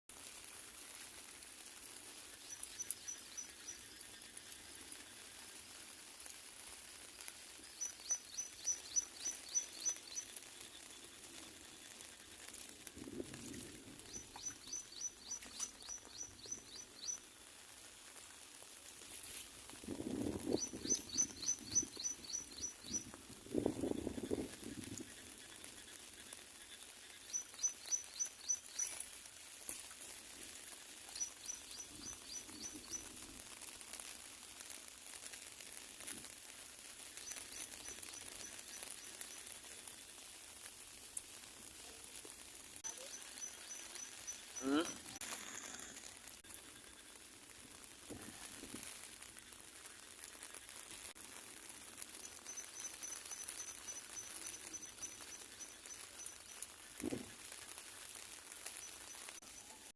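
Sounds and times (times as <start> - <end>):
faint outdoor background hiss: 0.1 - 59.9
bird chirping: 7.8 - 10.9, 20.6 - 23.1, 27.0 - 29.0.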